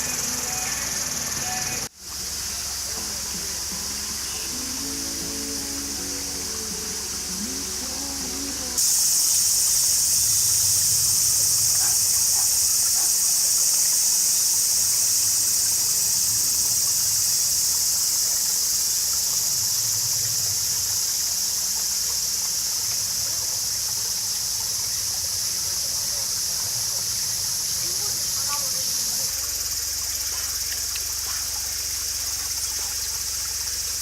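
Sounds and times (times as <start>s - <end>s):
music: 0.0s - 8.9s
high-pitched insect chorus: 0.0s - 34.0s.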